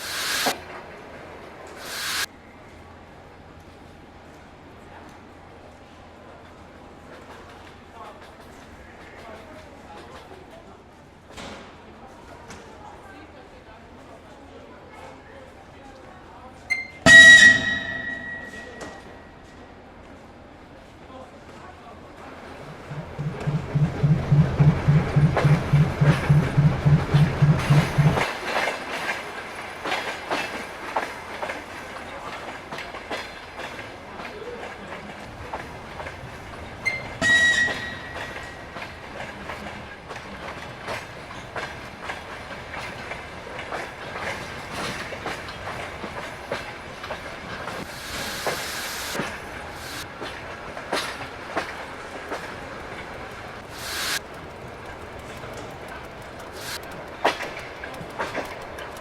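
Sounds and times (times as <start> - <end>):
short hiss: 0.0 - 0.6, 1.8 - 2.3, 47.8 - 50.0, 53.7 - 54.2, 56.6 - 56.8
high squeal: 16.7 - 19.2, 36.8 - 38.6
train wheels clattering: 16.7 - 19.3, 22.2 - 59.0
low pulsing hum: 22.6 - 28.2.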